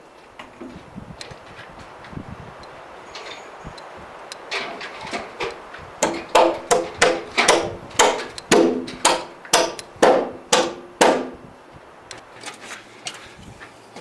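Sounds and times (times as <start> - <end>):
hammer driving nails: 4.5 - 11.4.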